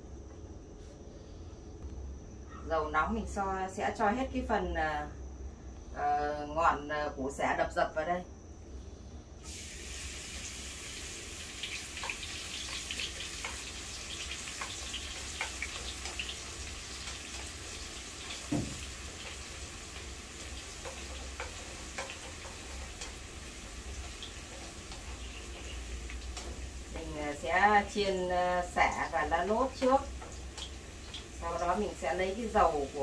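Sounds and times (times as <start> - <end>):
food sizzling in oil: 9.4 - 33.0.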